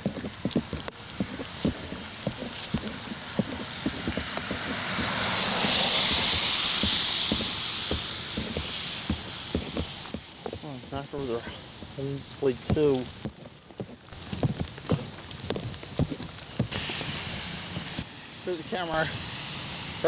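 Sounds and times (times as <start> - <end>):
tyre hiss on wet road: 0.4 - 13.0, 16.6 - 20.0.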